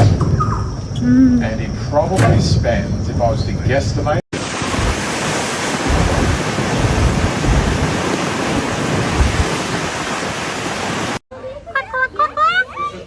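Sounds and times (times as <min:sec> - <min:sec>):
wind buffeting microphone: 0:04.5 - 0:11.2.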